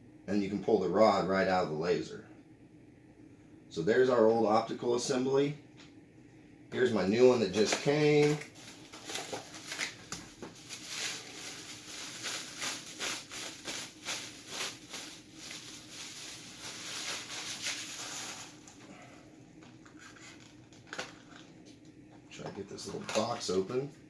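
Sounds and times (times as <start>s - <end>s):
packaging crinkling and rustling: 7.1s - 18.8s, 19.6s - 21.6s, 22.8s - 23.6s.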